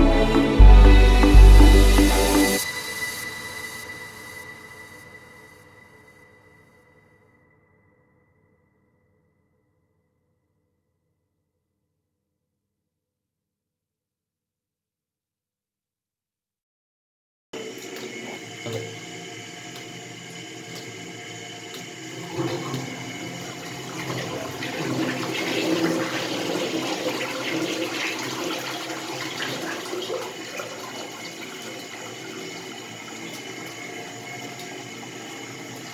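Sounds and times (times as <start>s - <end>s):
toilet flushing: 17.6s - 35.9s.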